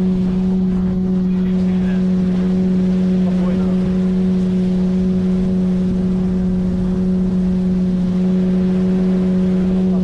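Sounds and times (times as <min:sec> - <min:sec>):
outboard motor running: 0:00.0 - 0:10.0
water rushing: 0:00.0 - 0:10.0.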